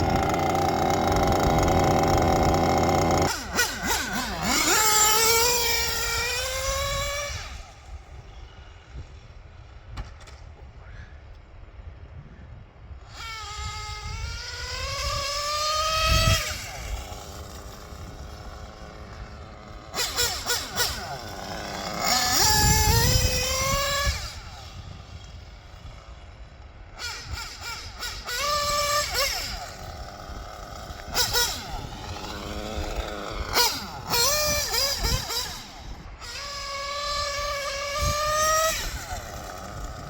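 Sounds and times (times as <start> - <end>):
nitro engine revving: 0.0 - 8.4, 13.2 - 40.0.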